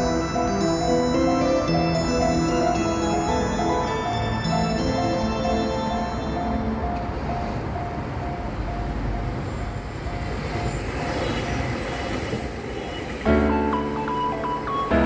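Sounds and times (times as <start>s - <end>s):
train rumbling past: 2.3s - 15.0s
level crossing warning bell: 8.7s - 15.0s.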